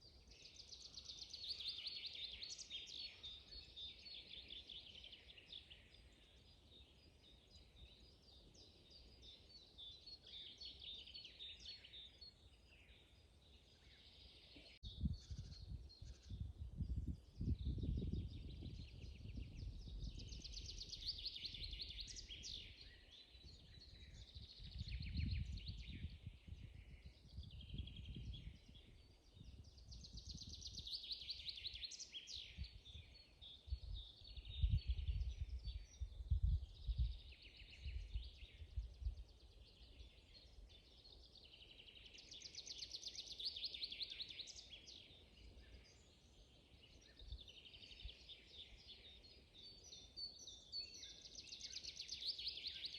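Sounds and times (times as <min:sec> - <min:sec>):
wind rumble on microphone: 0:14.3 - 0:42.0.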